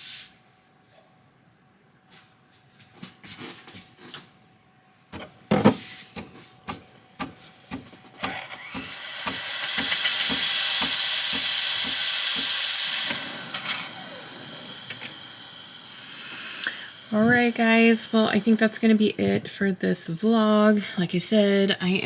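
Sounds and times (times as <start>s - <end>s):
steam wand hissing: 8.2s - 20.7s.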